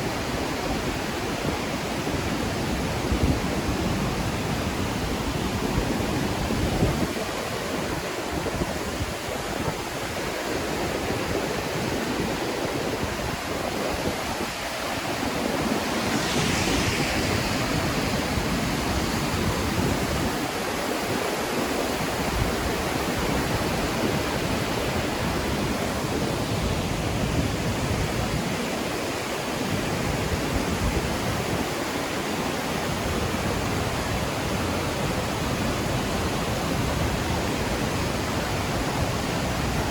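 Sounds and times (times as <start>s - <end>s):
waterfall rushing: 3.9s - 27.9s
brief higher hiss: 15.6s - 19.6s.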